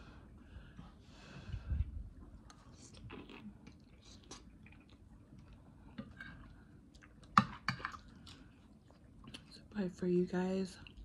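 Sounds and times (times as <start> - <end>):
chewing and wet mouth clicks: 6.9 - 9.7.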